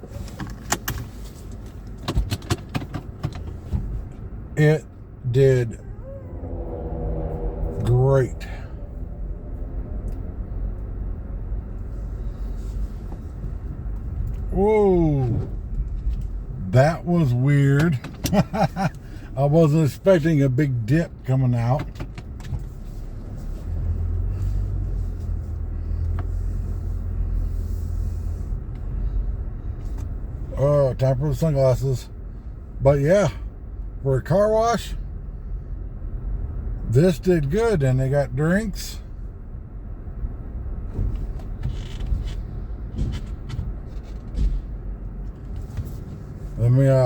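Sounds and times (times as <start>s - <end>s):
car engine and tyres rumbling: 0.0s - 47.0s.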